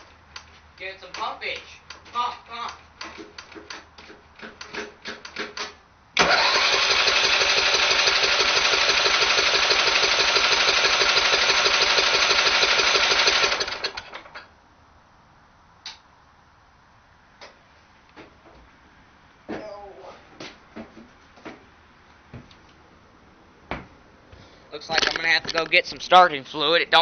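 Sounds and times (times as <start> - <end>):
engine cranking by electric starter: 4.4 - 14.5.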